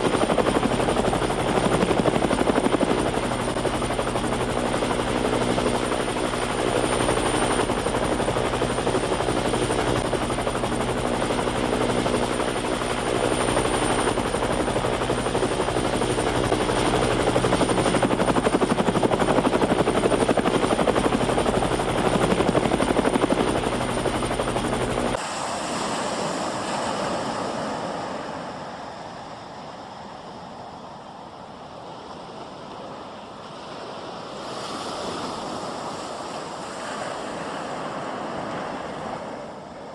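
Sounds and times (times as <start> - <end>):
helicopter rotor and engine: 0.0 - 31.6, 33.2 - 39.9
wind: 0.0 - 39.9
sea surf: 25.2 - 30.9, 31.6 - 39.9.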